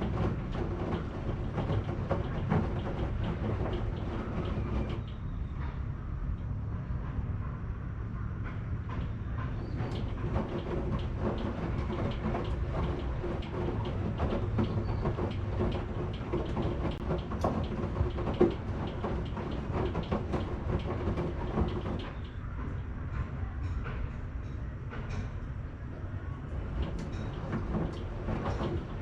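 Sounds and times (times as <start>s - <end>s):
drum knocking and clicking: 0.0s - 5.2s, 8.9s - 22.8s, 26.5s - 29.0s
washing machine rumbling: 0.0s - 6.1s, 8.2s - 29.0s.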